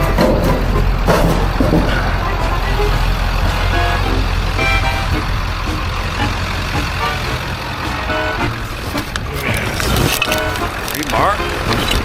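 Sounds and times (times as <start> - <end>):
vehicle engine rumbling: 0.0 - 12.0
short high notes: 1.9 - 8.8.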